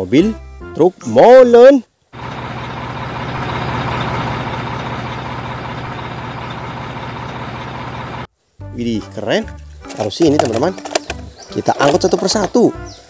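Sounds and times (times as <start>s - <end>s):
diesel truck engine rumbling: 2.2s - 8.3s.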